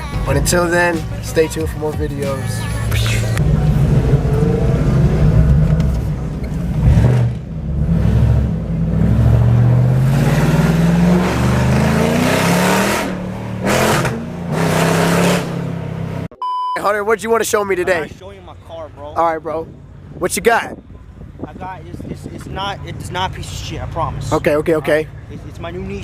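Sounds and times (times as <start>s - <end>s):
car engine revving: 2.2s - 16.3s.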